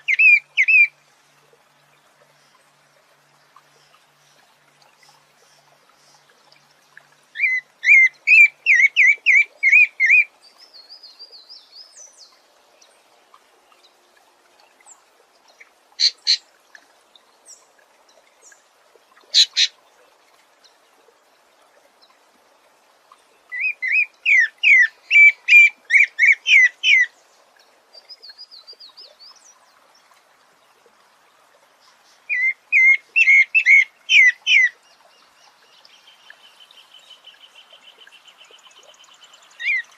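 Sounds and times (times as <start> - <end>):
songbird singing rising phrases: 3.7 - 13.0, 23.1 - 30.2, 31.8 - 39.9.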